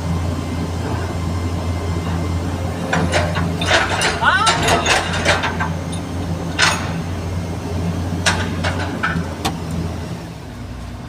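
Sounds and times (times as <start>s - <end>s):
diesel excavator engine drone: 0.0s - 11.0s
machine knocks and clanks: 2.0s - 7.4s, 8.1s - 9.8s.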